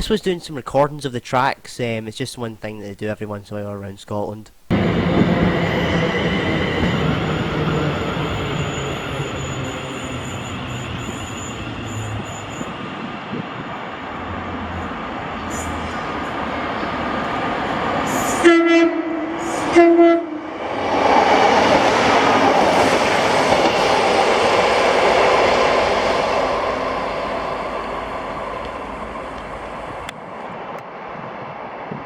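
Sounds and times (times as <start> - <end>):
train passing: 4.7 - 32.0
train horn blasts: 18.0 - 20.6.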